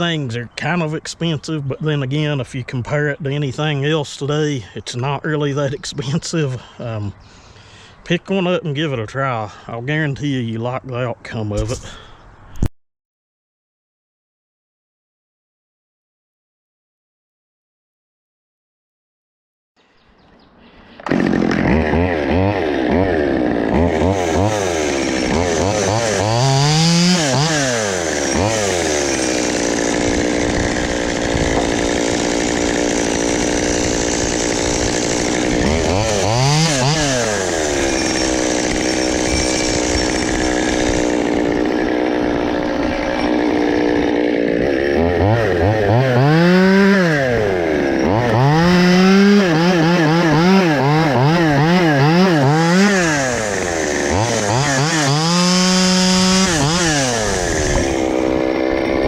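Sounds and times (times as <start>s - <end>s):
chainsaw cutting log: 11.5s - 12.1s, 21.0s - 59.0s.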